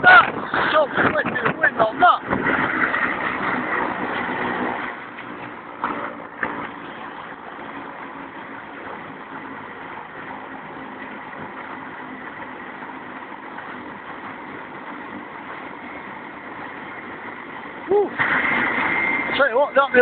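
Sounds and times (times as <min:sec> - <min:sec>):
helicopter engine and rotors: 0:04.7 - 0:20.0.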